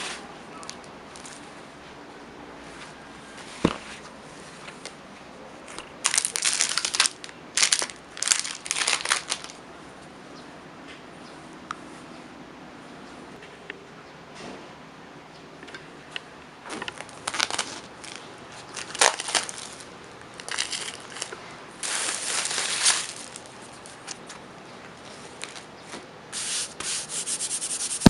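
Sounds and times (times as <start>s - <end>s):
crinkling handling noises: 0.0s - 2.0s, 5.6s - 9.6s, 16.1s - 26.1s.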